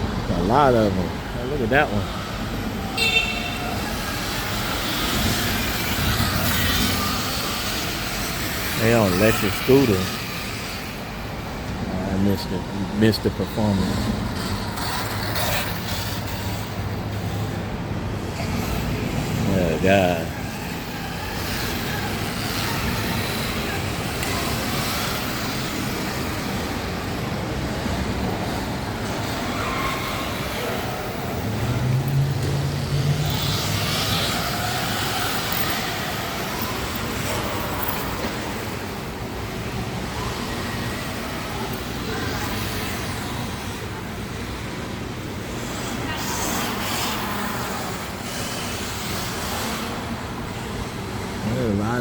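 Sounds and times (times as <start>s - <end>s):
city street traffic: 0.0s - 52.0s
vehicle engine passing: 18.5s - 38.7s.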